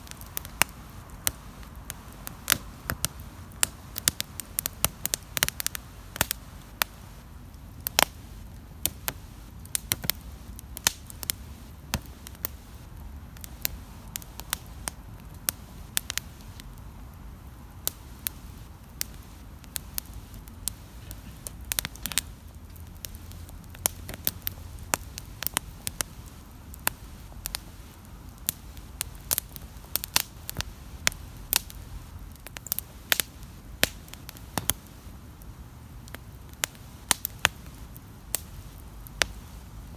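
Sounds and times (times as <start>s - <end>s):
campfire crackling and popping: 0.0s - 39.9s
low rumble of fire: 0.0s - 39.9s.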